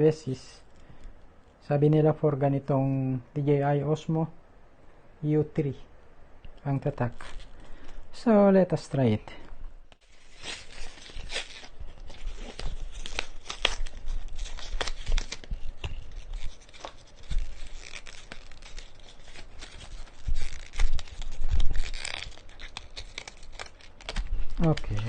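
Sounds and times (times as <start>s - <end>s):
packaging tearing and rustling: 7.0s - 8.0s, 10.0s - 25.0s.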